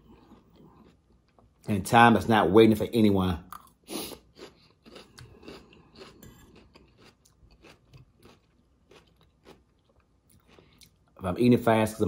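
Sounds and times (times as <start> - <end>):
chewing with soft crunches: 0.0 - 1.7, 3.5 - 11.2.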